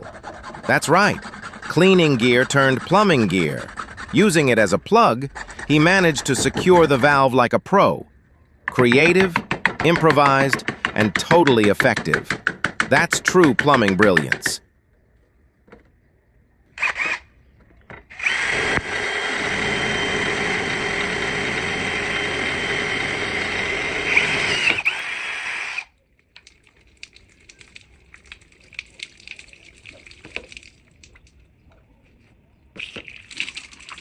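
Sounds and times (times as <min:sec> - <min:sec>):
small electric motor running: 0:18.1 - 0:25.9.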